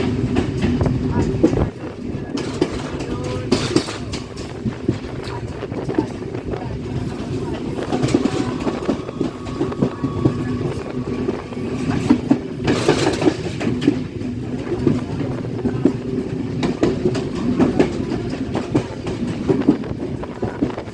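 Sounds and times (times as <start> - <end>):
train wheels clattering on rails: 0.0 - 20.9.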